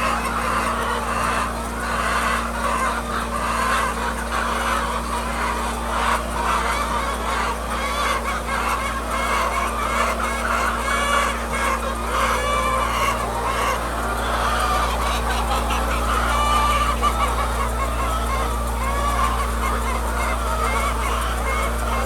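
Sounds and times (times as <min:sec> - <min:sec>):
hens clucking: 0:00.0 - 0:22.0
steady low hum: 0:00.0 - 0:22.0.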